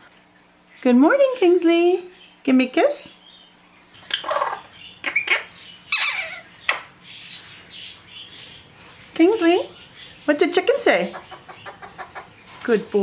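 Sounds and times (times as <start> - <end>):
parrots squawking and chirping: 3.2 - 12.6.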